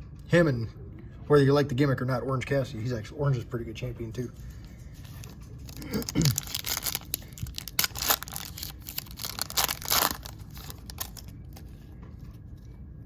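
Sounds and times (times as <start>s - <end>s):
plastic wrapper tearing and crinkling: 5.0s - 11.6s.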